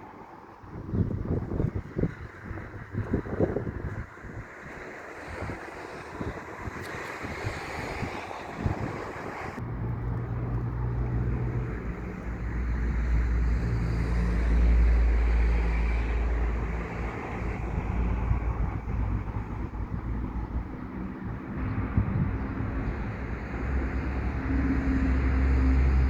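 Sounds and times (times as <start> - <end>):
diesel rail engine hum: 0.0 - 26.0
wind on microphone: 0.6 - 26.0.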